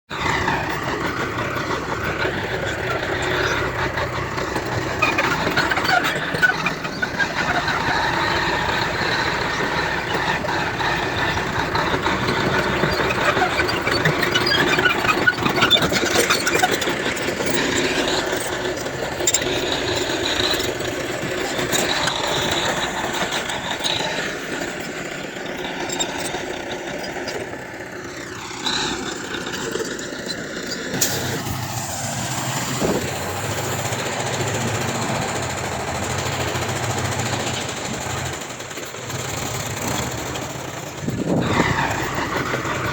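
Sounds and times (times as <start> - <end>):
diesel engines running: 0.1 - 42.9
low engine hum: 30.9 - 42.9.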